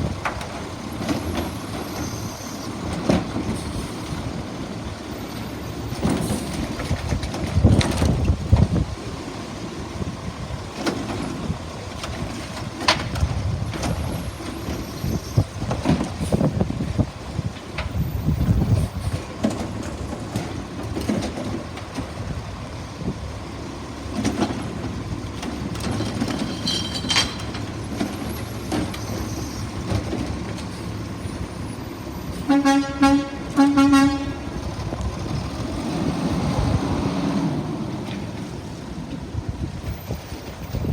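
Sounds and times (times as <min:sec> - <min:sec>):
garbage truck engine rumbling: 0:00.0 - 0:40.9
metal clanks and bangs: 0:24.1 - 0:29.2.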